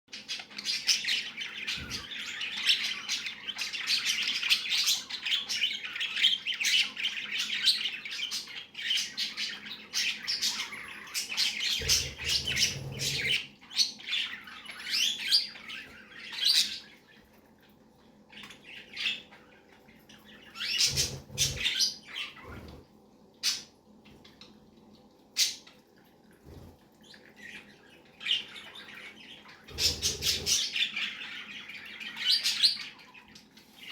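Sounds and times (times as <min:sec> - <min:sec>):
budgerigar chattering and chirping: 0:11.5 - 0:13.4.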